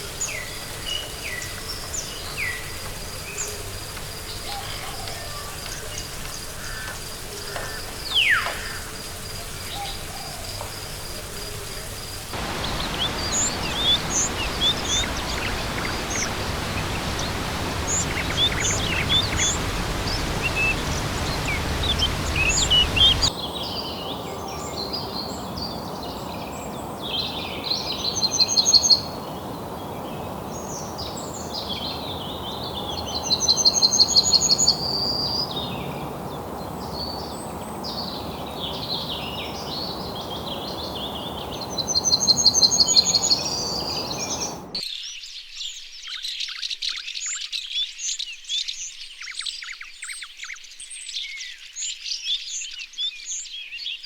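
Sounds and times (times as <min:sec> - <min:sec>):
background hiss: 0:12.0 - 0:44.8
rapid bird trill: 0:12.4 - 0:23.3
birds calling: 0:12.4 - 0:44.8.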